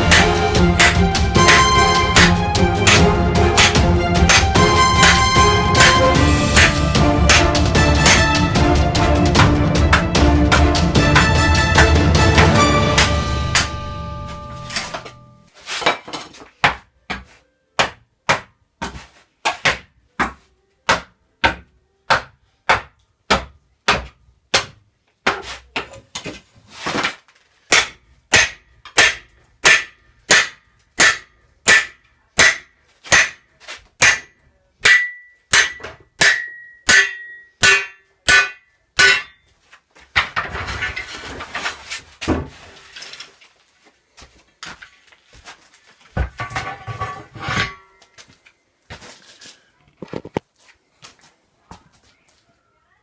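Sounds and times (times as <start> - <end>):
hammer blows: 0.0 - 15.4
rough scraping and rustling: 26.4 - 27.6, 40.5 - 43.8.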